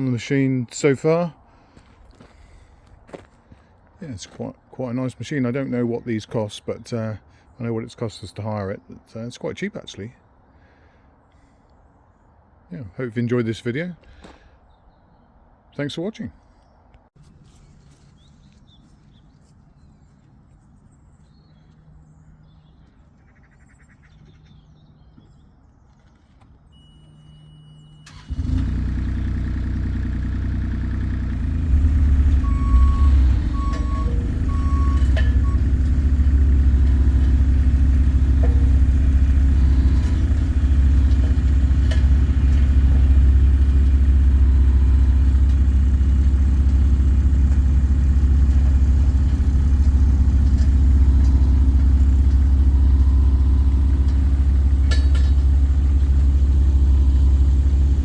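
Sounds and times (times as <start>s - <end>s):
diesel engine running: 0.0s - 4.4s, 26.2s - 58.0s
reversing alarm beeps: 26.7s - 28.1s, 32.4s - 35.8s, 50.8s - 54.2s.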